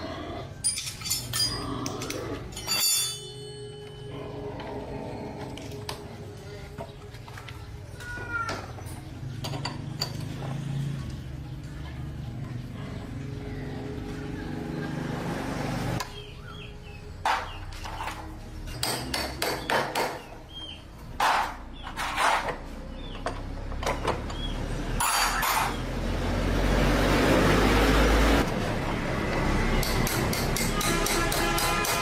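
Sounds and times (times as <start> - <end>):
hand tools knocking on metal: 17.3 - 20.3, 29.8 - 32.0.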